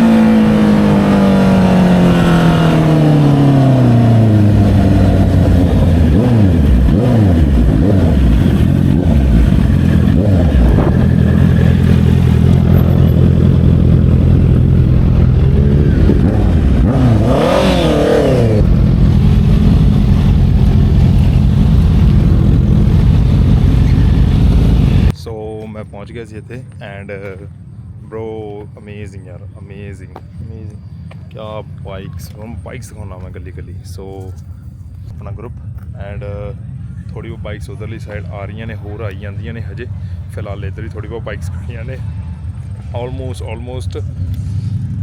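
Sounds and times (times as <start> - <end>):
motorcycle engine running: 0.0 - 25.1.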